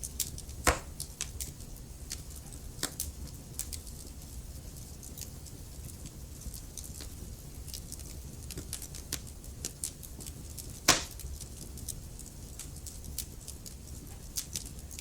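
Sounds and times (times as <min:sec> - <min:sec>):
low fire rumble: 0:00.0 - 0:15.0
wood fire crackling: 0:00.0 - 0:15.0
loud fire pop: 0:00.6 - 0:01.0, 0:10.9 - 0:11.2.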